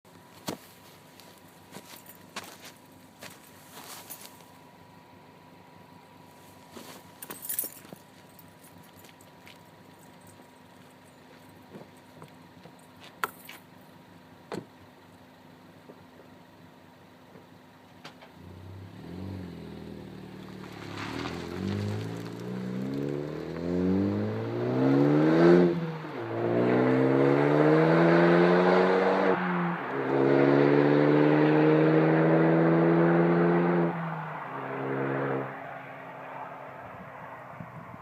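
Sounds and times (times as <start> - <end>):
car engine accelerating: 18.2 - 38.0.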